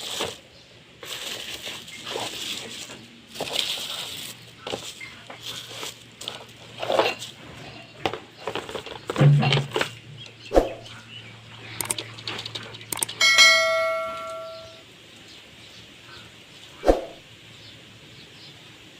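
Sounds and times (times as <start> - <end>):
knocks and clicks: 11.8 - 14.8
metallic ding: 13.0 - 14.8.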